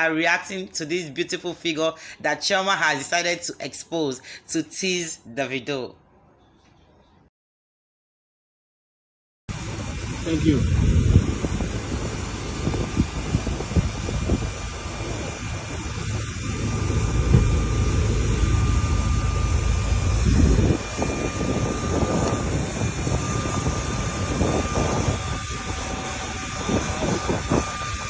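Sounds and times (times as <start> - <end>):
faint steady whine: 9.5 - 28.0
jet engine rumble: 9.5 - 28.0.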